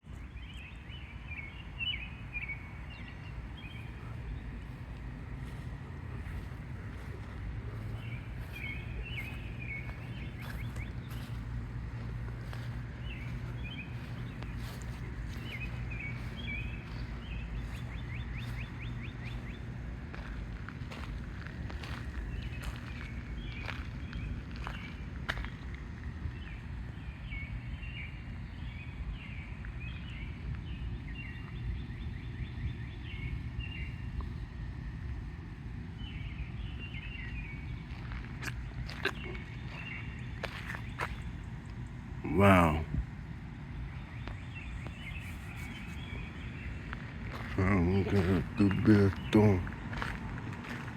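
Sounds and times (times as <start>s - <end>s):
birds chirping: 0.0s - 50.9s
steady low rumble: 0.0s - 50.9s.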